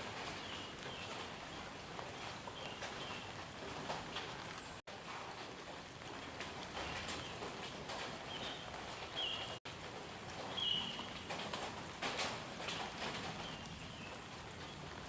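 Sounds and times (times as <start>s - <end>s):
outdoor background noise: 0.0s - 15.0s
light clicks and knocks: 9.9s - 14.2s.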